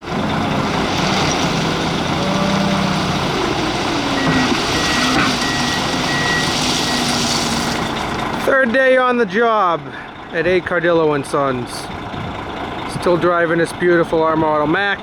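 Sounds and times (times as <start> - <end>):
heavy diesel machinery running: 0.0 - 15.0
reversing alarm beeping: 2.2 - 8.0.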